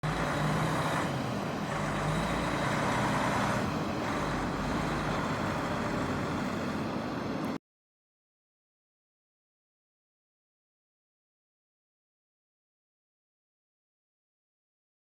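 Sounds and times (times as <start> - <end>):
truck diesel engine running: 0.0 - 7.6.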